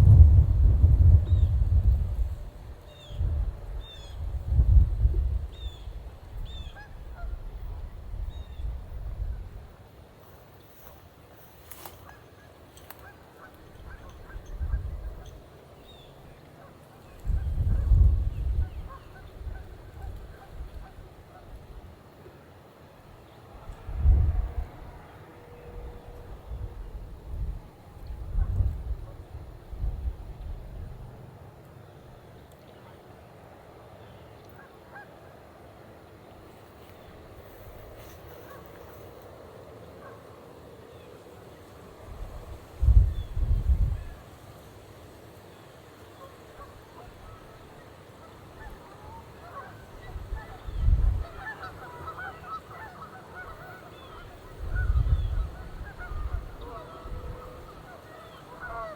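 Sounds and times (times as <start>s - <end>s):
low rumble: 0.0s - 2.4s
outdoor background rumble: 0.0s - 6.3s
geese honking: 46.2s - 58.9s.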